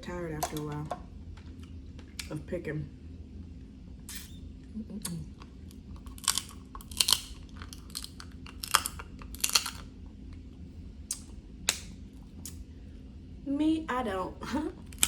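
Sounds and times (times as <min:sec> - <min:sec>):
chewing: 0:05.0 - 0:09.9
crab shells cracking: 0:05.4 - 0:10.0, 0:11.1 - 0:12.6.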